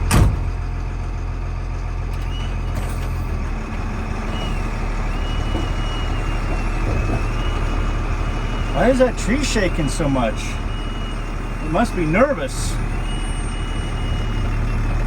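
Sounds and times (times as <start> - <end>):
truck diesel engine rumbling: 0.0 - 15.0.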